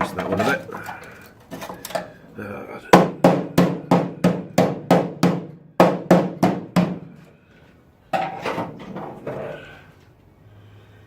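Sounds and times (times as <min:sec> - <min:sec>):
hammer striking car bodywork: 0:02.9 - 0:07.3.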